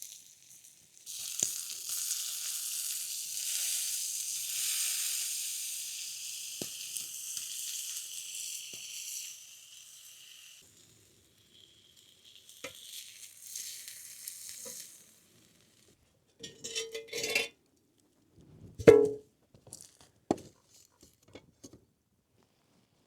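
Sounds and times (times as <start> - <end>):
food sizzling over a fire: 0.0 - 16.0
cooking utensils scraping and clattering: 16.4 - 17.6.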